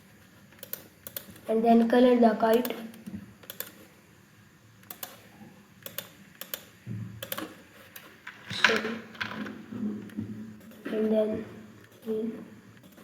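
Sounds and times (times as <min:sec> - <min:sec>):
computer mouse clicking: 0:00.5 - 0:01.5, 0:02.5 - 0:03.9, 0:04.8 - 0:05.2, 0:05.8 - 0:10.8.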